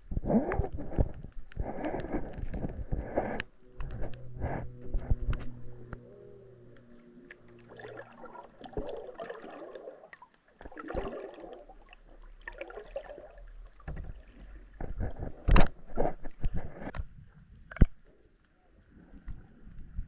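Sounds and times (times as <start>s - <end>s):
underwater clicks and knocks: 0.0s - 6.1s, 13.6s - 18.1s
swishing gurgling water: 0.0s - 20.0s.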